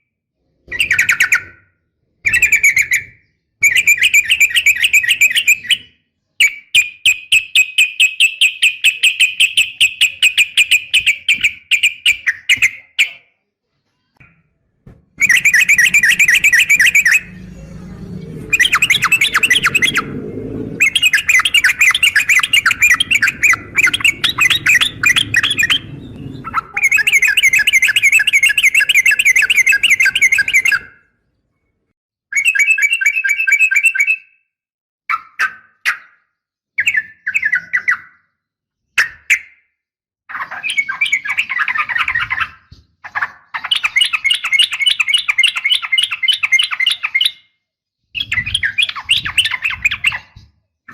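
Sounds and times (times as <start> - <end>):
low rumbling noise: 14.7 - 30.8
bird chattering calls: 15.2 - 30.8.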